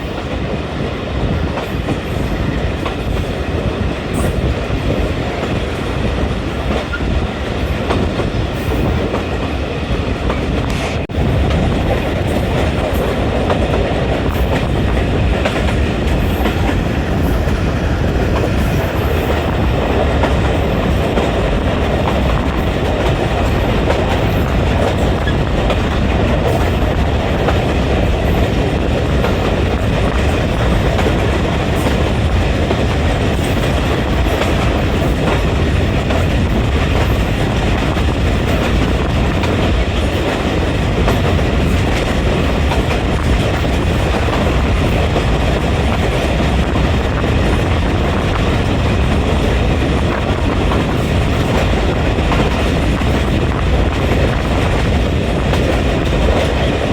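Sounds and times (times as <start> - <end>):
train wheels rumbling on rails: 0.0 - 56.9.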